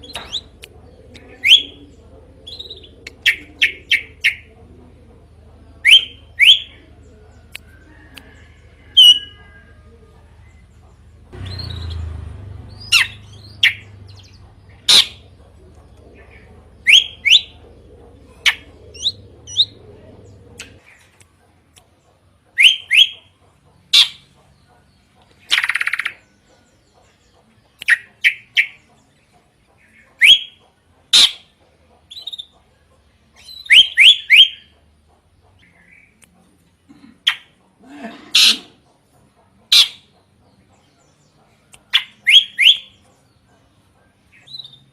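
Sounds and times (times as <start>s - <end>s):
bird whistled calls: 1.4s - 1.8s, 16.8s - 17.6s, 22.6s - 23.2s, 30.2s - 31.4s, 33.4s - 34.7s, 41.9s - 43.0s.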